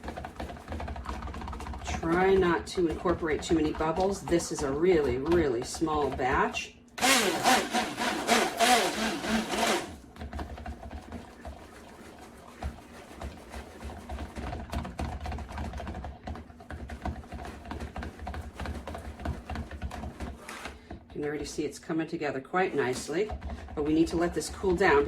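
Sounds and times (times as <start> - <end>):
immersion blender running: 5.2 - 10.3.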